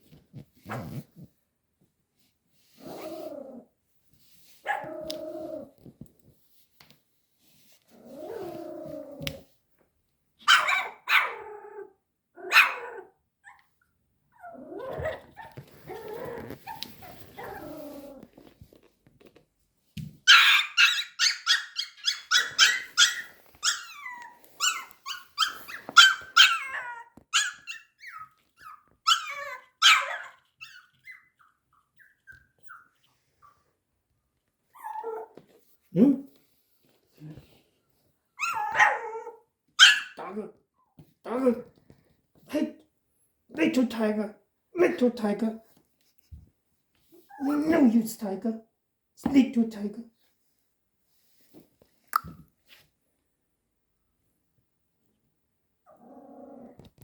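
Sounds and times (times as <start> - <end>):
puppy growling: 4.8 - 5.8, 8.0 - 9.4, 14.4 - 18.5, 55.9 - 57.0
high yapping barks: 10.4 - 11.4
puppy barking: 10.4 - 11.4, 12.5 - 12.8, 20.3 - 24.0, 24.6 - 27.9, 29.1 - 30.4, 39.8 - 40.2.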